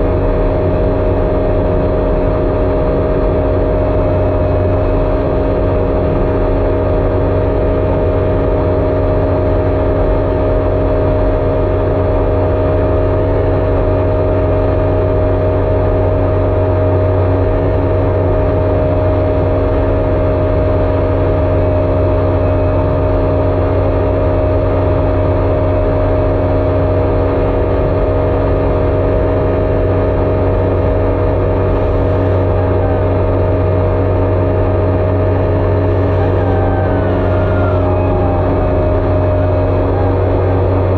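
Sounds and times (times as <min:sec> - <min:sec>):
jet ski engine running: 0:00.0 - 0:40.9.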